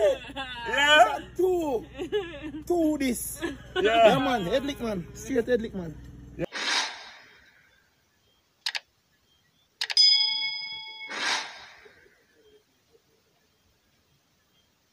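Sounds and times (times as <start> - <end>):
whoosh: 6.5 - 7.5, 11.0 - 12.1
quick clicks: 8.6 - 8.9, 9.8 - 10.0
bright bell ding: 10.0 - 11.2.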